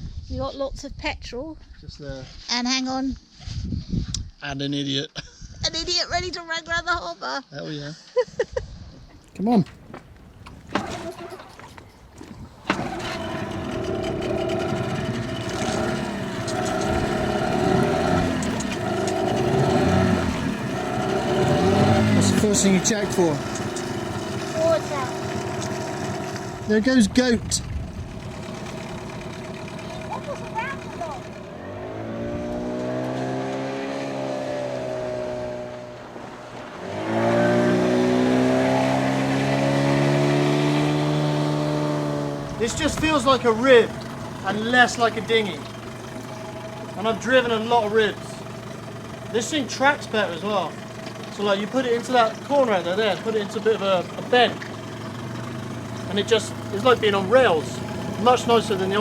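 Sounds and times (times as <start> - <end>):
outboard motor running: 10.2 - 59.0.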